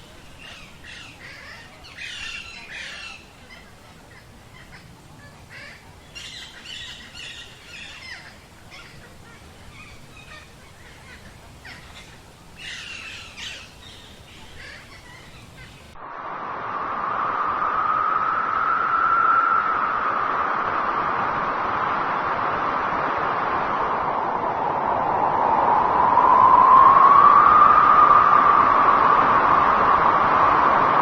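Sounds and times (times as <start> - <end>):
birds chirping and calling: 0.0 - 16.0.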